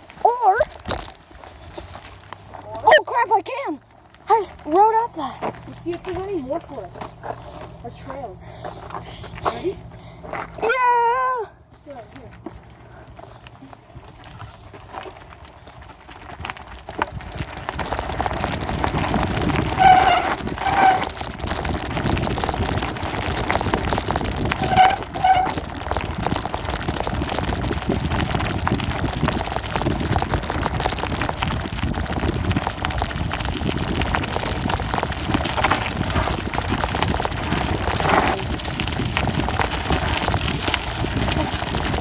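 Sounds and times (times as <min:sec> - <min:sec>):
bicycle tyres rattling on trail: 0:00.0 - 0:42.0
wind on microphone: 0:16.8 - 0:42.0.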